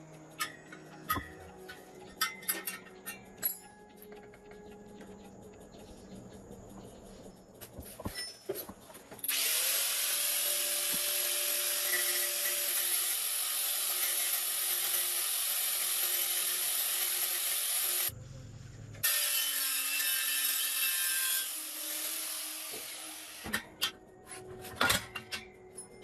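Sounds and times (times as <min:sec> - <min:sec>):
light metal clinks: 0:00.3 - 0:04.9
handheld power tool running: 0:09.2 - 0:18.1.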